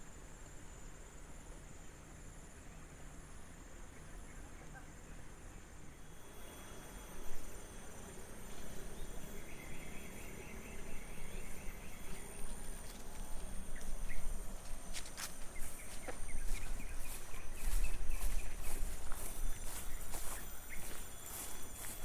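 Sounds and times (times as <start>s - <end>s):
cricket chirps: 0.0s - 22.0s
insects droning: 0.0s - 22.0s
footsteps on a path: 8.4s - 22.0s.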